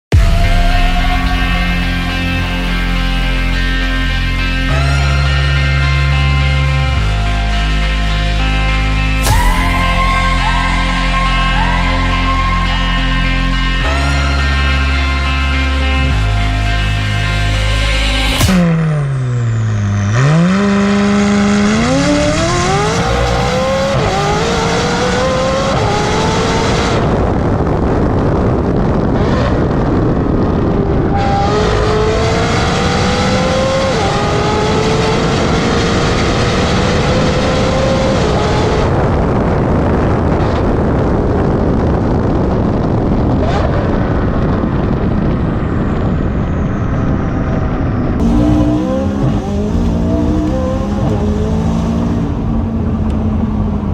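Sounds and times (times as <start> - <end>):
sports car accelerating through gears: 18.2 - 27.3, 28.7 - 39.2, 48.2 - 53.9.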